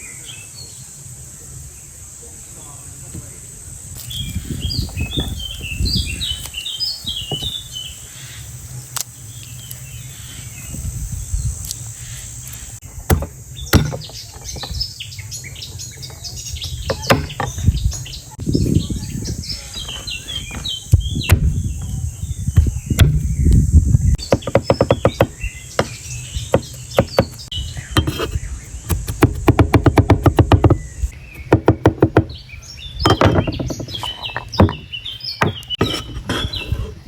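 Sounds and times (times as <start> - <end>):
small birds chirping: 0.0 - 37.0
low thumps of handling: 7.1 - 7.7, 12.9 - 15.0, 16.0 - 32.4, 33.0 - 37.0
sharp knocks of handling: 13.1 - 14.8, 16.6 - 18.0, 24.2 - 30.8, 33.1 - 36.1.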